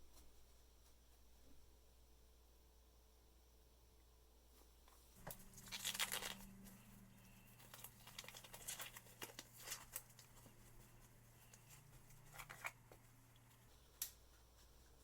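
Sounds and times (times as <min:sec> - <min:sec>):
faint low hum: 0:00.0 - 0:15.0
dry rustling and scraping: 0:04.9 - 0:15.0.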